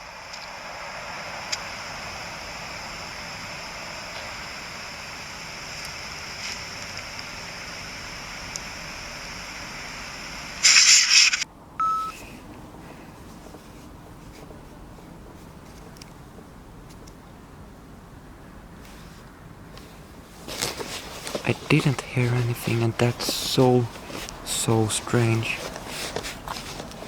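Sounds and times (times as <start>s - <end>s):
burst of static: 0.0s - 11.4s, 20.5s - 27.0s
electronic hiss with high whine: 0.0s - 12.2s, 20.4s - 27.0s
short beep: 11.8s - 12.2s.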